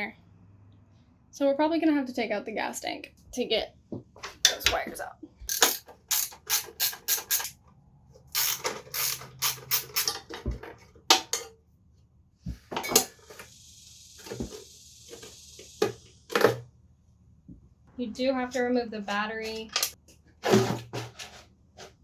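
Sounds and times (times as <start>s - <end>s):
hand tools clicking and knocking: 5.5s - 7.5s, 8.3s - 11.6s
steady hiss: 13.0s - 16.5s.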